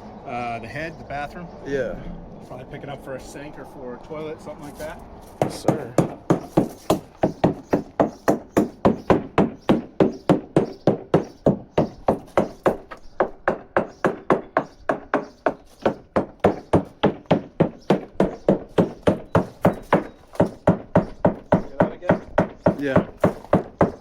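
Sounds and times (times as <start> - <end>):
hammer tapping on fiberglass hull: 5.4 - 24.0.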